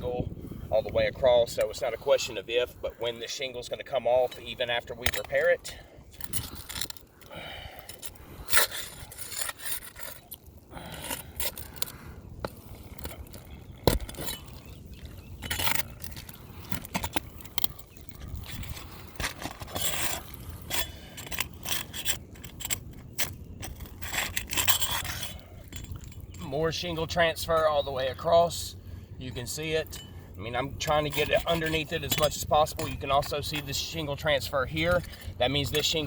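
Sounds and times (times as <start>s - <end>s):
roof shingle scraping and crackling: 0.5s - 28.8s, 29.4s - 36.0s.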